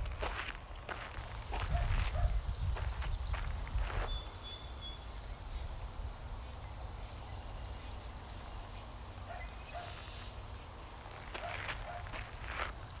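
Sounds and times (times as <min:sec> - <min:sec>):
faint bird calls: 0:09.3 - 0:10.4.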